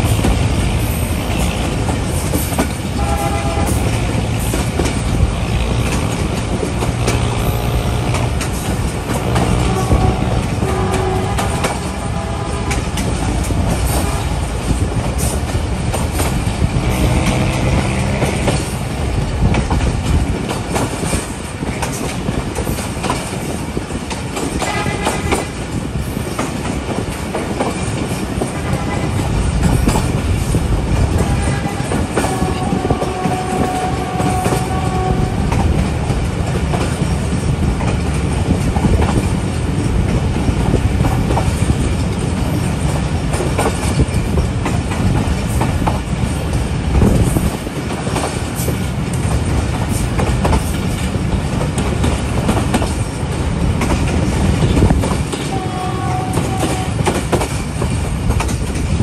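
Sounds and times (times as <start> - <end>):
train rumbling on track: 0.0 - 59.0
wheels clattering over rail joints: 0.0 - 59.0.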